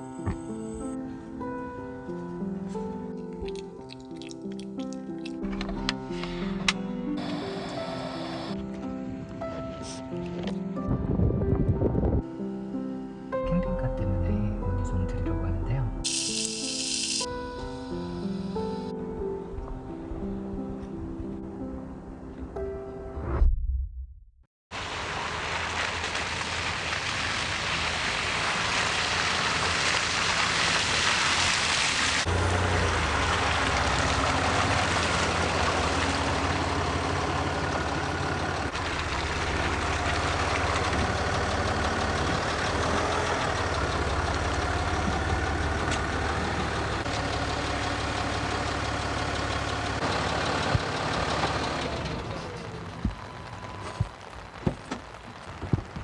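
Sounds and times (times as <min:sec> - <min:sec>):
vehicle engine humming: 0:04.6 - 0:11.9, 0:24.7 - 0:56.0.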